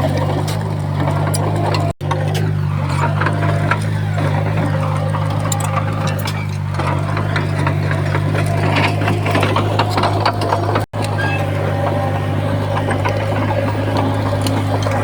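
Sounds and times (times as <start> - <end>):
bulldozer diesel engine running: 0.0 - 15.0
tracks clanking and rattling: 0.0 - 15.0.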